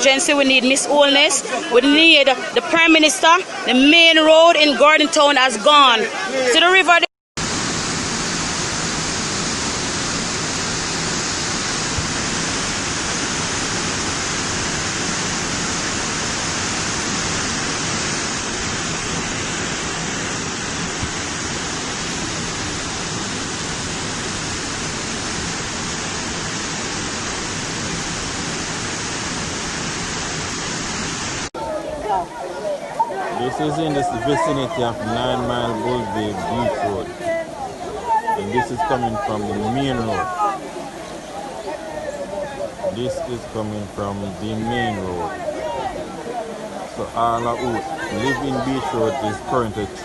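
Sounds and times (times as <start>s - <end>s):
floodwater roaring: 0.0s - 50.0s.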